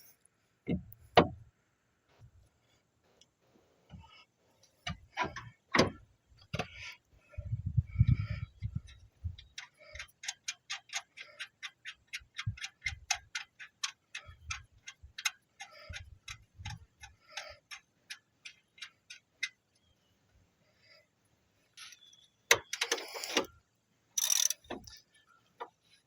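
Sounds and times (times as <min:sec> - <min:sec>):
ratchet wrench clicking: 0:24.2 - 0:25.0
tools and parts handling: 0:24.2 - 0:25.8.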